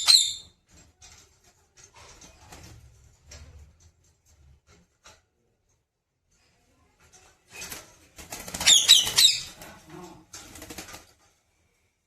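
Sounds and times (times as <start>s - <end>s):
parrot flapping wings: 7.5s - 11.4s.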